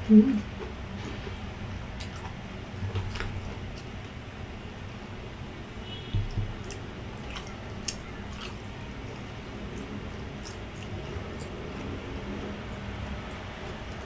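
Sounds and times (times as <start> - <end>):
person chewing: 2.0 - 4.1, 6.2 - 12.0
soft thumps: 6.1 - 6.8
wet mouth clicks: 6.2 - 8.7.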